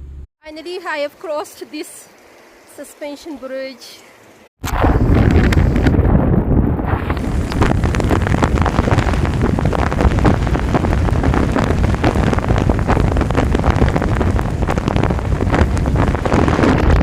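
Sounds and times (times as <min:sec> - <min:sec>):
strong wind buffeting microphone: 0:04.6 - 0:17.0.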